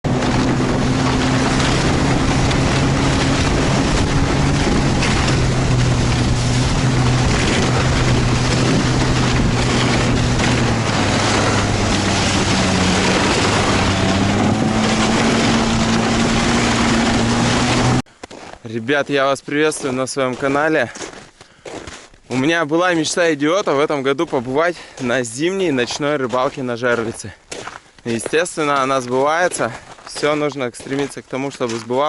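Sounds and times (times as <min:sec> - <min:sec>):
heavy wind rush: 0:00.0 - 0:18.0
vehicle engine running: 0:00.0 - 0:18.1.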